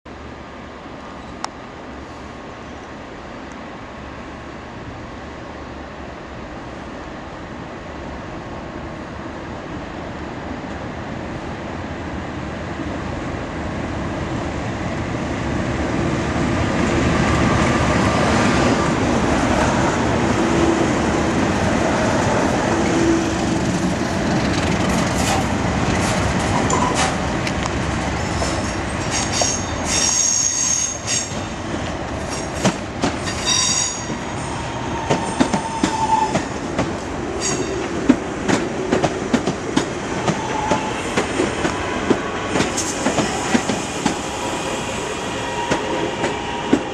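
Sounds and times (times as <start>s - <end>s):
diesel locomotive engine passing: 0.8s - 30.2s, 31.0s - 46.9s
wheels clicking over rail joints: 23.6s - 27.8s
high wheel squeals: 37.4s - 37.8s.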